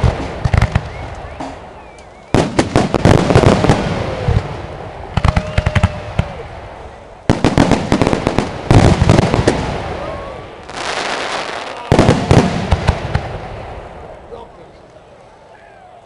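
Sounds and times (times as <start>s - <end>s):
fireworks bangs and crackles: 0.0s - 14.6s.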